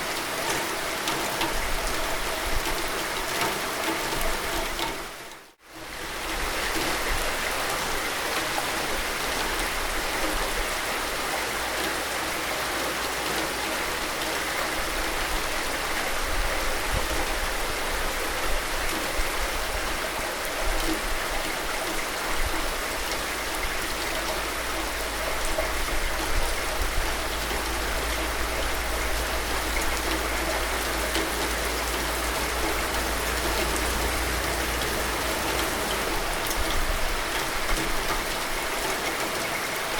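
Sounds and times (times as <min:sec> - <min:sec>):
steady rain falling: 0:00.0 - 0:39.9
raindrop ticks: 0:26.7 - 0:39.6.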